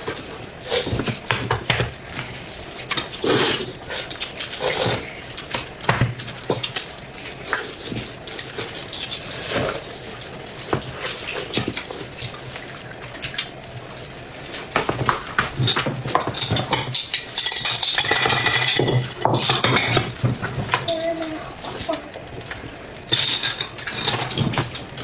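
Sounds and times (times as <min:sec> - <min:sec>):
chewing and mouth sounds: 0:00.0 - 0:15.6
utensils clicking against dishes: 0:15.0 - 0:25.0.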